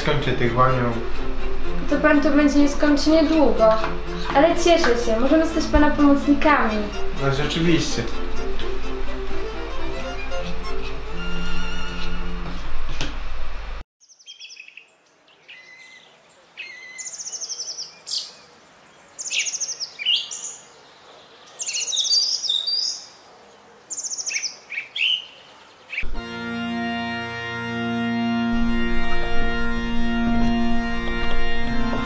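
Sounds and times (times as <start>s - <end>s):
organ music: 0.0s - 12.7s, 26.1s - 32.0s
songbirds singing: 14.0s - 26.1s.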